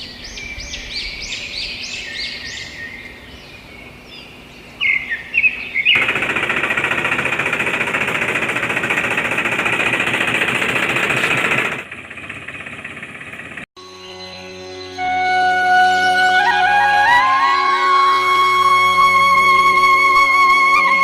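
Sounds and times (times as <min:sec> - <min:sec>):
birds chirping: 0:00.0 - 0:06.3
power tool rattling buzz: 0:06.0 - 0:13.7.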